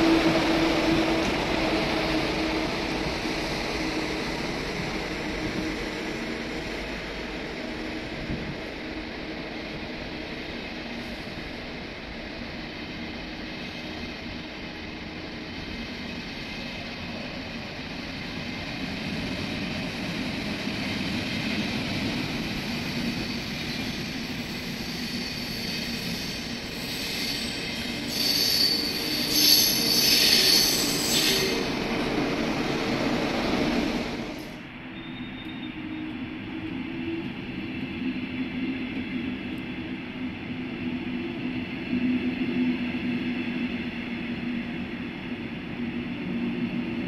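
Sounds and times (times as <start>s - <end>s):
train wheels rumbling on rails: 0.0s - 47.0s
high-pitched wheel squeal: 24.8s - 31.7s.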